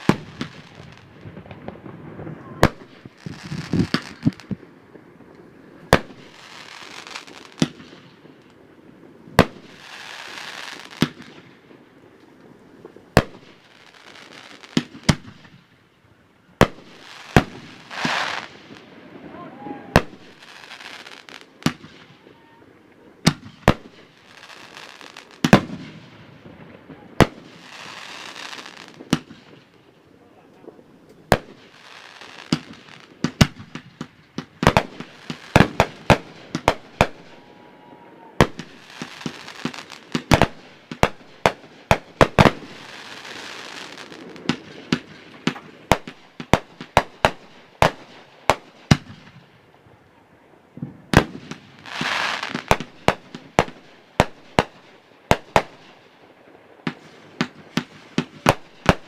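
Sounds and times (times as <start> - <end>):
fireworks hiss: 0.0 - 8.1, 9.1 - 11.4, 16.6 - 22.3, 27.2 - 29.6, 31.2 - 49.3, 51.1 - 55.9
fireworks bangs: 0.0 - 15.6, 16.6 - 49.6, 50.7 - 59.0.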